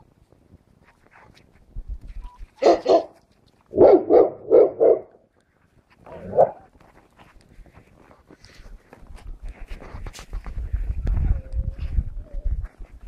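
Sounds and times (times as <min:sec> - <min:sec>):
dog barking: 0:02.6 - 0:03.2, 0:03.8 - 0:05.1, 0:06.2 - 0:06.6.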